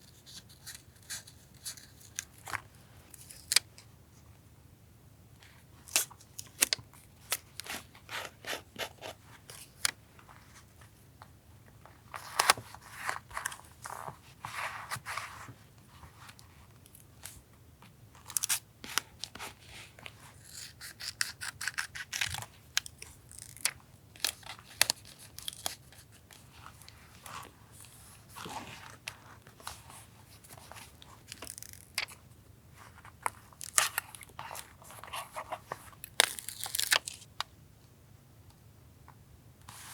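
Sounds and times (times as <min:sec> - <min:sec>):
scissors snipping: 0:20.5 - 0:23.7.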